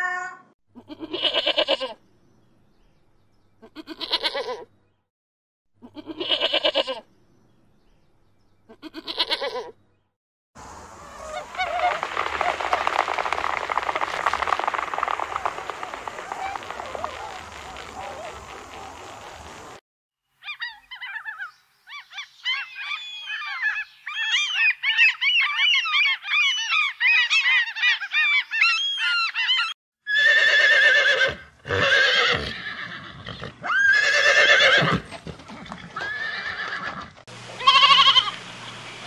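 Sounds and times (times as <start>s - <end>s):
goats bleating: 5.9s - 7.0s, 36.0s - 38.4s
gulls calling: 10.6s - 19.8s
horse whinnying: 29.6s - 38.3s.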